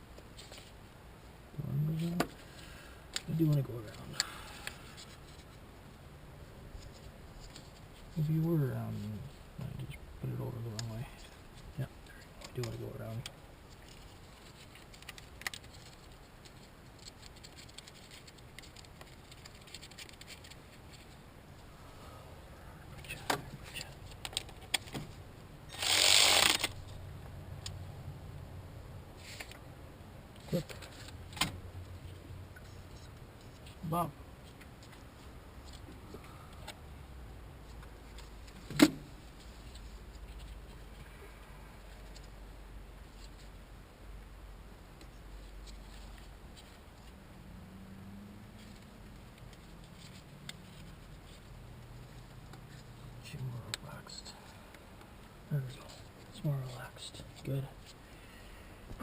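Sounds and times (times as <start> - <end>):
small clicks and handling noise: 10.7 - 21.2, 23.0 - 25.2.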